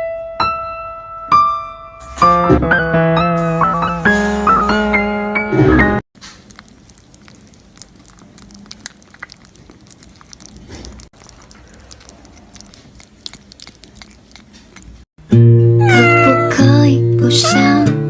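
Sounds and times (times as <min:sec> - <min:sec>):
chewing and crunching: 0:06.2 - 0:15.1.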